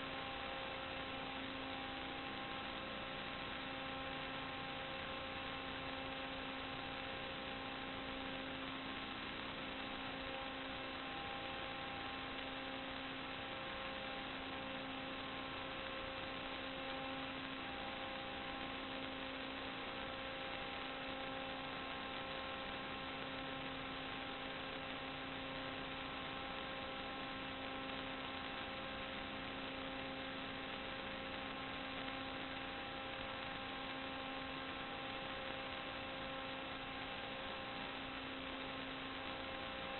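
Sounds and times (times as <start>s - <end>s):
electrical hum and hiss: 0.0s - 39.9s.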